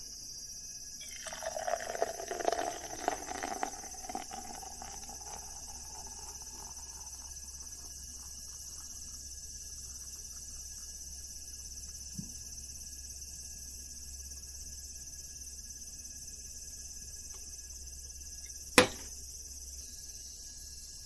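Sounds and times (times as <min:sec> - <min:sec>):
drink pouring into a cup: 0:01.0 - 0:10.5, 0:18.8 - 0:19.2.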